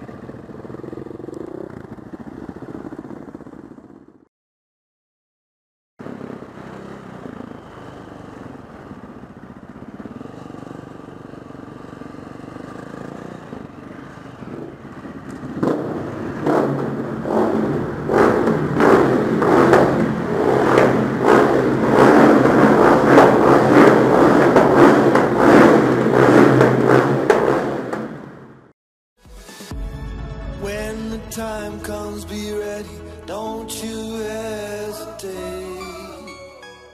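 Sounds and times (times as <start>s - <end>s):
motorcycle engine revving: 0.0s - 4.3s, 6.0s - 28.7s.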